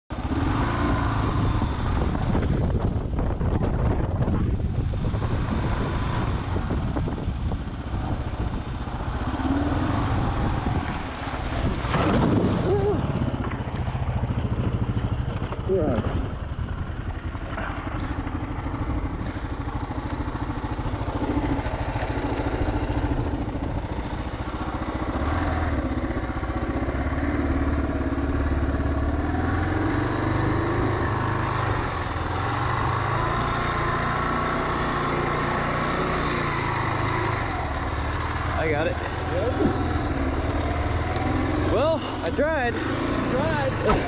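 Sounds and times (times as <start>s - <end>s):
motorcycle engine running: 0.1s - 44.0s.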